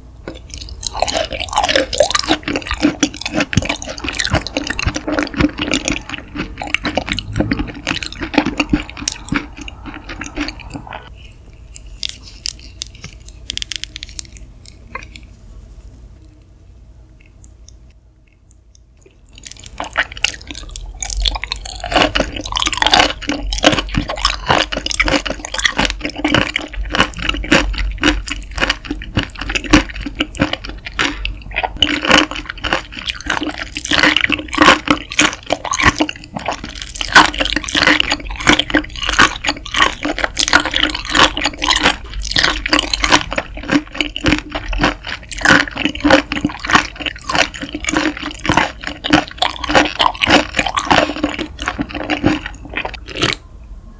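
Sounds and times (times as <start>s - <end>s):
octopus squelching wetly: 0.3s - 11.1s, 19.4s - 53.4s.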